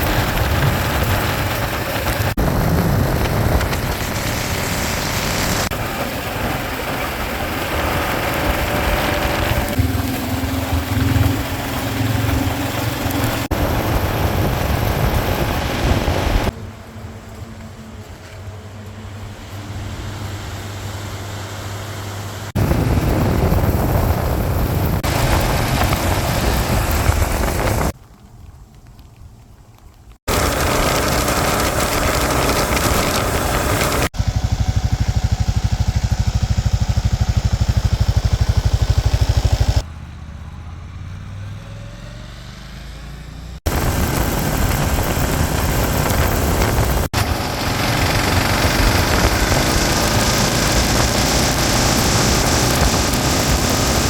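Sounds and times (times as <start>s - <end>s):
wind noise: 0.0s - 18.1s, 22.5s - 36.4s, 43.6s - 54.0s
motorcycle engine rumble: 0.0s - 21.2s, 22.0s - 28.8s, 30.2s - 54.0s.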